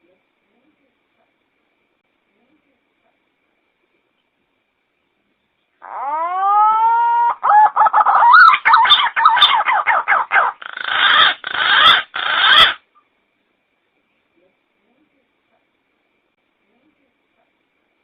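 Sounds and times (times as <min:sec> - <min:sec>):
pigeon call: 0:05.8 - 0:12.8.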